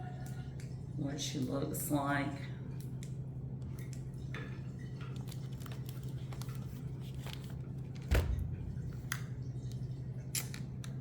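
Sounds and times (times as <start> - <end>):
steady low hum: 0.0 - 11.0
faint rustling and handling: 5.0 - 8.0.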